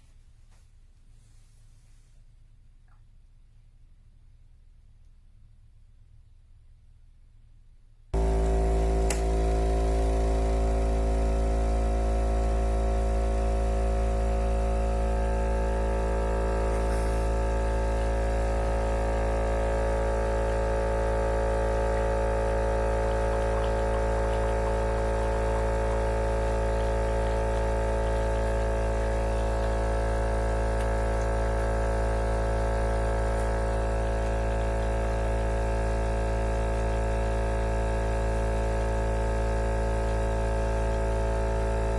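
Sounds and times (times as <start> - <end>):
loud droning hum: 8.2 - 40.2.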